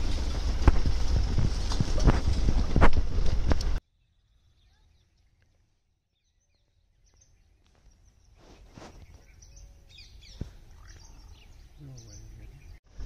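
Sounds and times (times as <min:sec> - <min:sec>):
low forest rumble: 0:00.0 - 0:05.4
bird chirps: 0:03.9 - 0:12.8.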